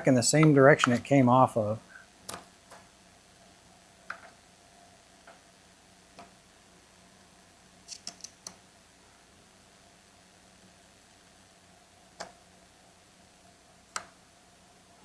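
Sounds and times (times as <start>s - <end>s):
low steady hum: 0.0s - 15.0s
small parts and tools clicking: 7.8s - 8.6s.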